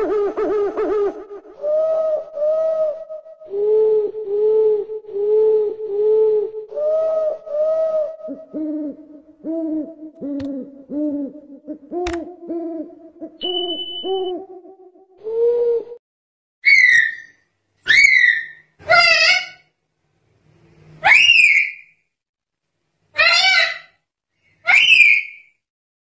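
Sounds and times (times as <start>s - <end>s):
owls hooting: 0.0s - 16.0s
sharp click: 12.0s - 12.2s
high steady whistle: 13.4s - 14.4s.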